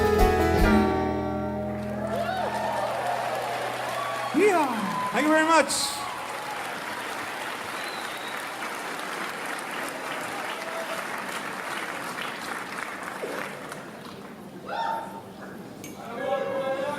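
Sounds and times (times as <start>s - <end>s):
audience applauding: 1.8s - 14.2s
shouts in crowd: 2.0s - 6.8s.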